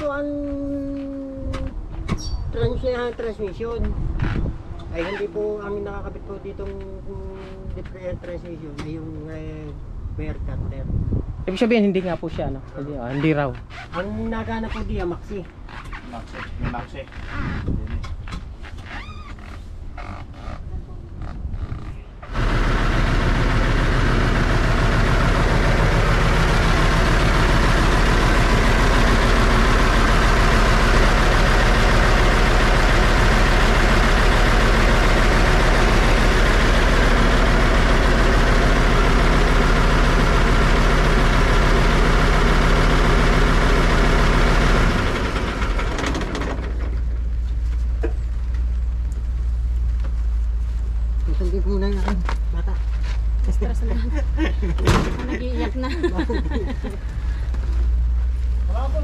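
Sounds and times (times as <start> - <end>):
diesel truck engine clattering: 22.2 - 50.2, 53.2 - 59.0.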